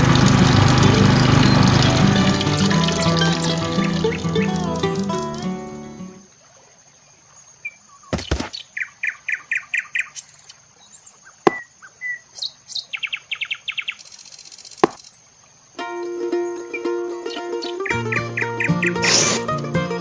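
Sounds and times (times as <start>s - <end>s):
small birds chirping: 0.0s - 6.2s, 16.2s - 20.0s.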